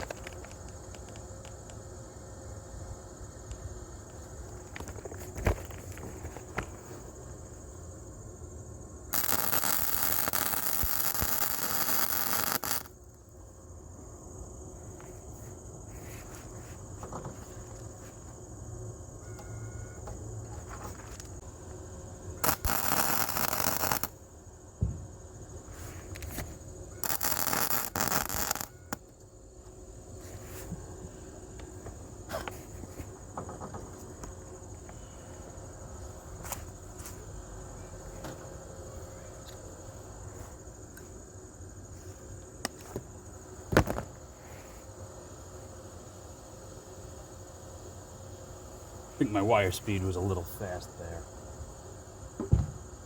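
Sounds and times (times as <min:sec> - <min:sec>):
welder arc crackling and hissing: 0:09.1 - 0:13.4, 0:21.0 - 0:24.4, 0:25.6 - 0:29.2, 0:48.5 - 0:51.7.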